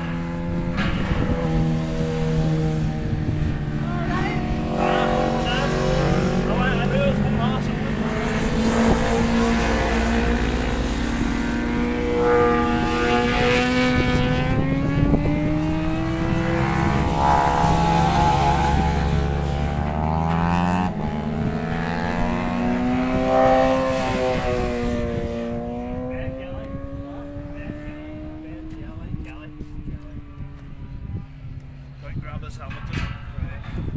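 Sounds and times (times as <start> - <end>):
steady low drone: 0.0 - 23.2
motorcycle engines accelerating: 0.0 - 33.9
wind buffeting microphone: 0.0 - 33.9.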